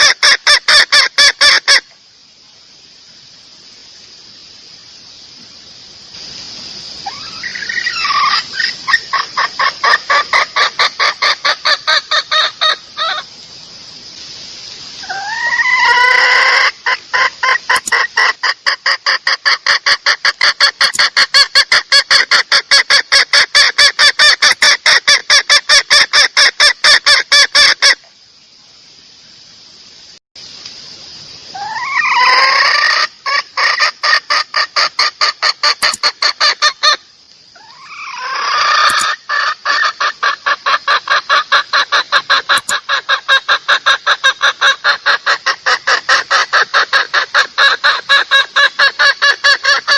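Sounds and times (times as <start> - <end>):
steady high hiss: 0.0 - 49.9
hen clucking: 7.1 - 13.3, 15.0 - 28.0, 31.6 - 37.0, 37.6 - 49.9.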